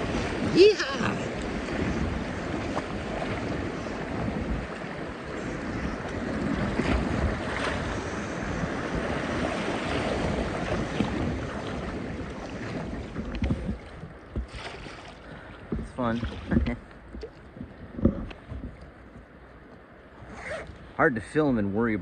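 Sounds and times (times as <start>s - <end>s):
river rapids rushing: 0.0s - 1.3s
wind buffeting microphone: 0.0s - 22.0s.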